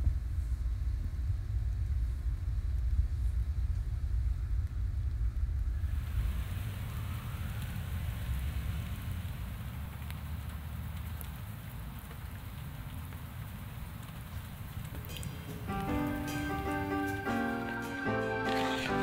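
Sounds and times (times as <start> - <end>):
low rumble: 0.0 - 10.1
steady rain hissing: 0.0 - 19.0
drops ticking on wet leaves: 4.6 - 19.0.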